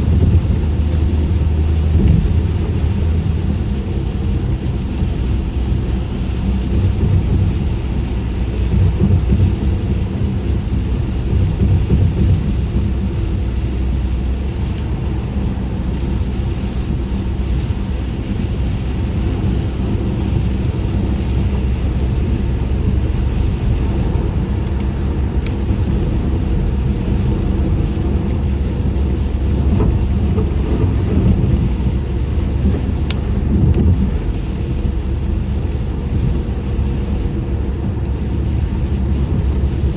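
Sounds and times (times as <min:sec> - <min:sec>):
road and tyre rumble: 0:00.0 - 0:39.9
water hiss from tyres: 0:15.9 - 0:37.6.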